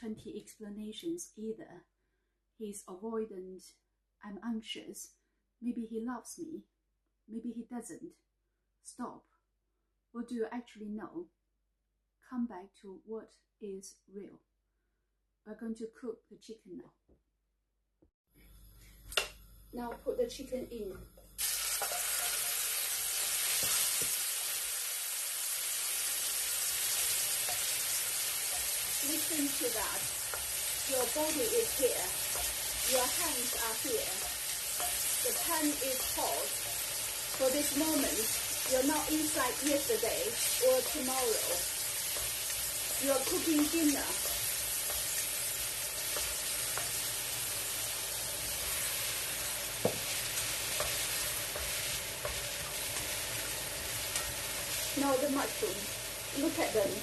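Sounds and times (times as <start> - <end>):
chicken sizzling in oil: 21.4 - 57.0.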